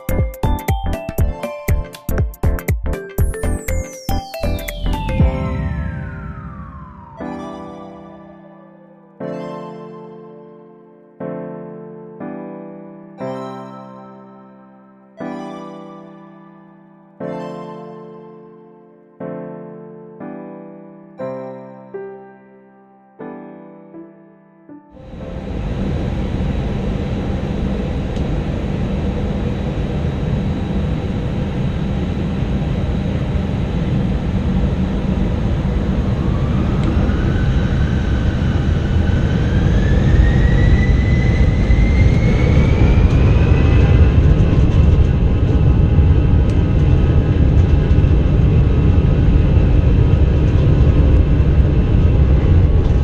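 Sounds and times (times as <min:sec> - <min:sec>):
jet engines spooling up: 0:03.8 - 0:08.7, 0:25.0 - 0:53.0.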